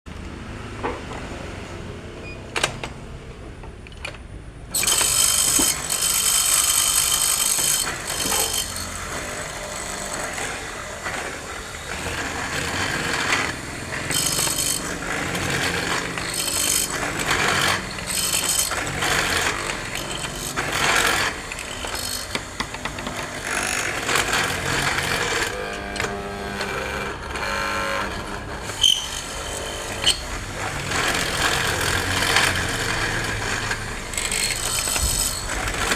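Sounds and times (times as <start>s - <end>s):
power tool cutting wood: 4.7s - 35.9s.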